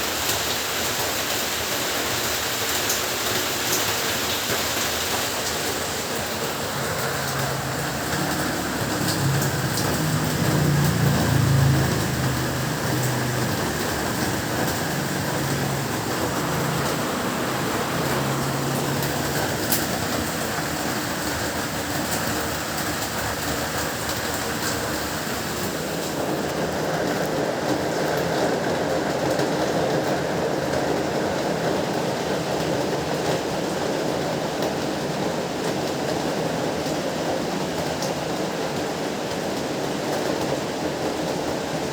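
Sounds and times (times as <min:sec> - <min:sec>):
heavy rain falling: 0:00.0 - 0:41.9
rain drop ticks: 0:05.4 - 0:25.1.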